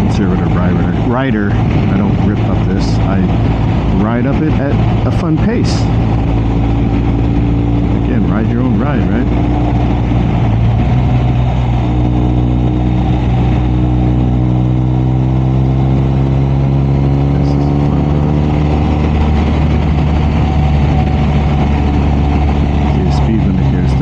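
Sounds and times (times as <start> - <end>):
motorcycle engine cruising: 0.0 - 24.0
wind and road noise: 0.0 - 24.0.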